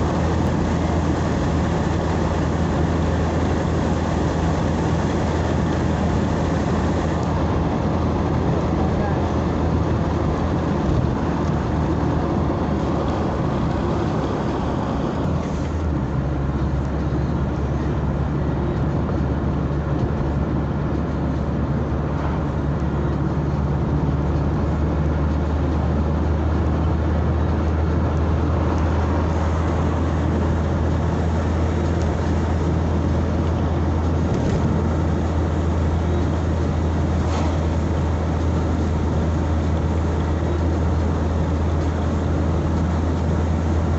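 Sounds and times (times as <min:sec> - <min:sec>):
road noise: 0:00.0 - 0:43.9
vehicle engine drone: 0:00.0 - 0:43.9.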